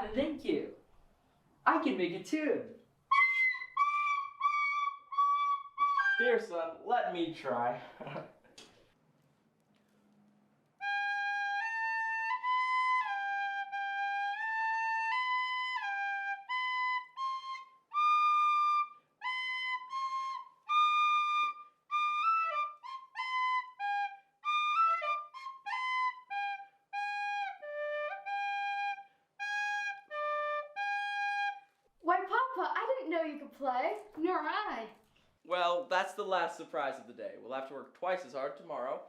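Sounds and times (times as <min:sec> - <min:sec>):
toy flute tune: 0:03.1 - 0:06.4, 0:10.8 - 0:31.8.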